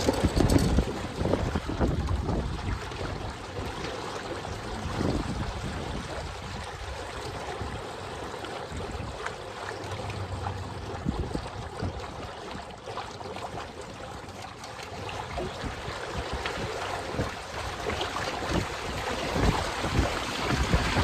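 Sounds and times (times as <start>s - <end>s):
wind rumble on microphone: 0.0s - 14.2s, 14.9s - 21.0s
water rushing along hulls: 0.0s - 21.0s.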